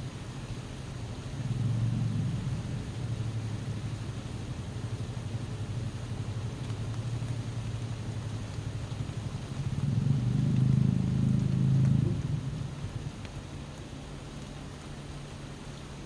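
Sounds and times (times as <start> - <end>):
rain hiss: 0.0 - 16.0
wind gusts rumbling: 9.2 - 13.4.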